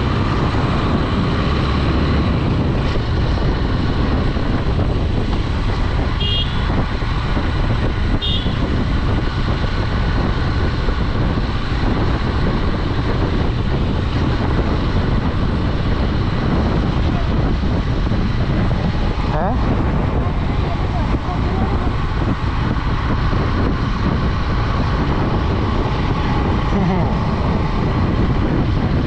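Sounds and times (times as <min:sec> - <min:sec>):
motorcycle engine: 0:00.0 - 0:29.0
wind rush: 0:00.0 - 0:29.0
horn beeps: 0:06.2 - 0:06.7, 0:08.2 - 0:08.6.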